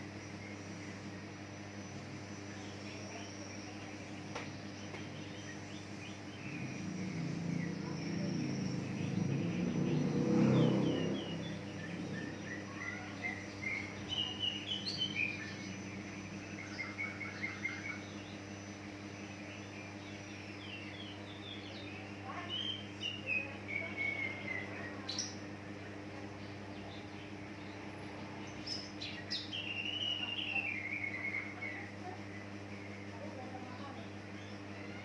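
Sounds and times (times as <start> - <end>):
steady background hum: 0.0 - 35.0
bird chirping and warbling: 0.2 - 35.0
passing vehicle rumble: 6.5 - 12.7.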